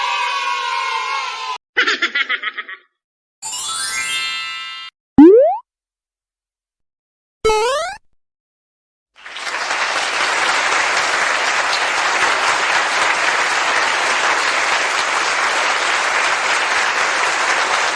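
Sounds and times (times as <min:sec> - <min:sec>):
crowd applauding: 0:09.2 - 0:17.9.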